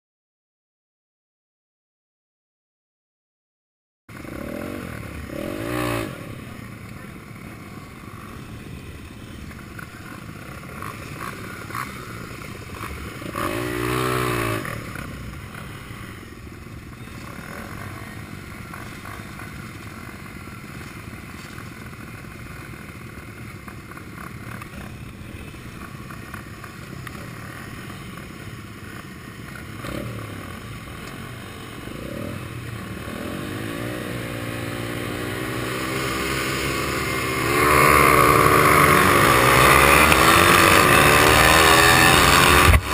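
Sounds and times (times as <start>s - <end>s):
small motorbike engines revving: 4.1s - 42.9s.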